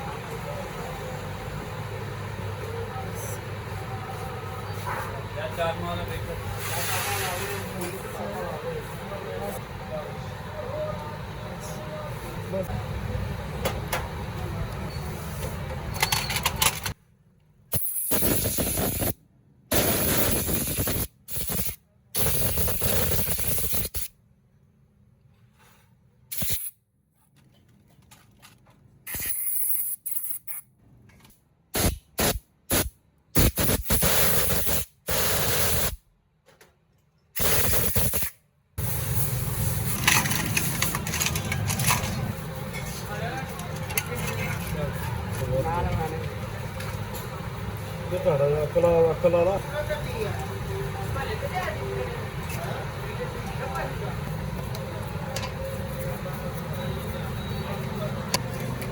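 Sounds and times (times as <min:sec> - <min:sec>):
spraying hiss bursts: 0:17.7 - 0:24.1, 0:26.3 - 0:26.7, 0:31.8 - 0:36.0, 0:37.4 - 0:40.9.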